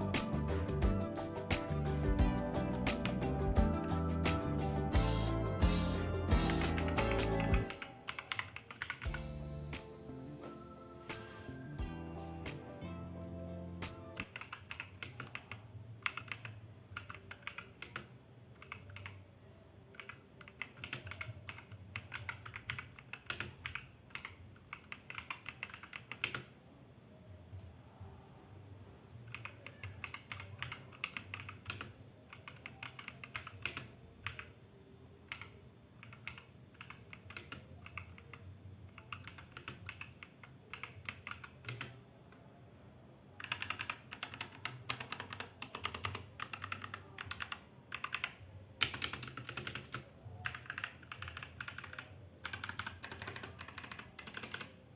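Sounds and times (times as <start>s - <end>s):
typing on mechanical keyboard: 6.3s - 9.3s, 14.2s - 19.2s, 19.9s - 26.6s, 29.3s - 34.6s, 35.3s - 42.0s, 43.4s - 54.9s.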